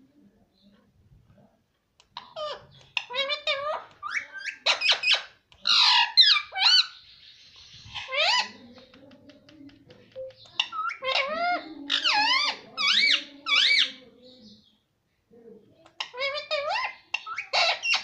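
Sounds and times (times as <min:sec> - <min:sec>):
parrot squeaky calls: 0:02.2 - 0:08.6, 0:10.6 - 0:14.0, 0:16.0 - 0:18.0.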